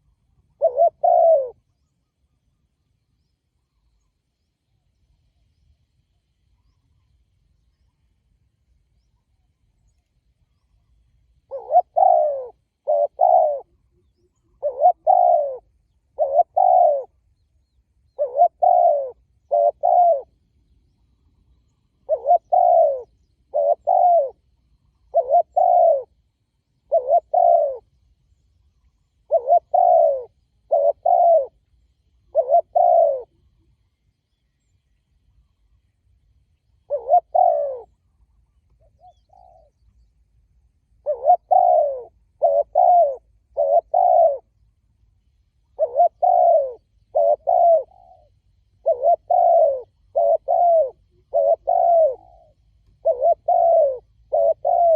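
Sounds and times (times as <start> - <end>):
dove cooing: 0.0 - 1.8, 11.5 - 17.3, 18.1 - 20.4, 21.4 - 27.9, 29.2 - 33.7, 36.8 - 38.1, 38.8 - 39.9, 41.0 - 44.6, 45.7 - 54.9.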